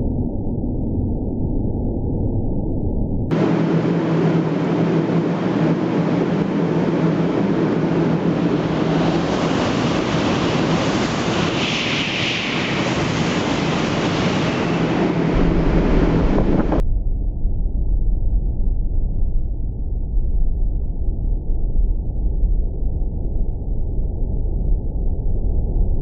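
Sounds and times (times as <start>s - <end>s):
dull low rumble: 0.0s - 11.1s, 14.0s - 26.0s
train passing at speed: 3.3s - 16.8s
wind buffeting microphone: 3.3s - 16.8s.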